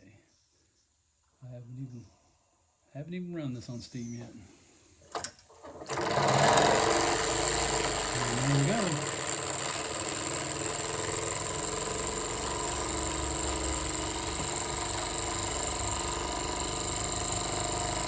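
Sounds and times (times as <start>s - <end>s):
toy steam engine running: 5.9s - 18.0s.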